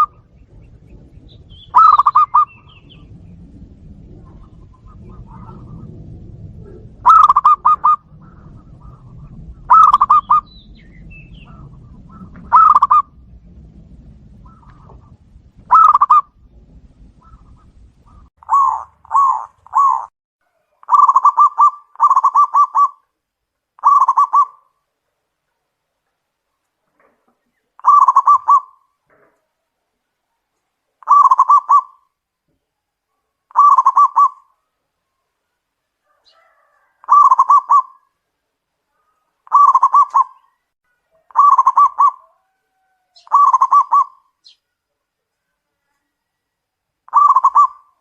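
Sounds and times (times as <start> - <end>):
doves cooing: 0.0 - 23.0, 23.8 - 24.6, 26.9 - 29.4, 31.0 - 32.0, 33.5 - 34.5, 36.0 - 38.2, 39.0 - 44.4, 47.1 - 48.0.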